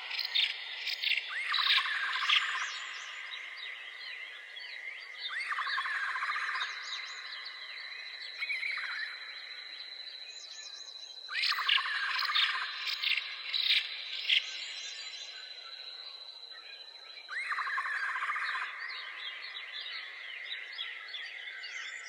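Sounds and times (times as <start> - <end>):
birds chirping and singing: 0.0 - 3.0.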